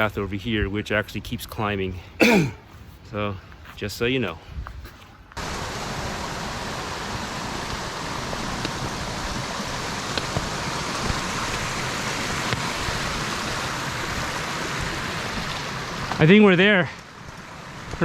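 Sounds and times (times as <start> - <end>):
creek water cascading: 5.4 - 18.0.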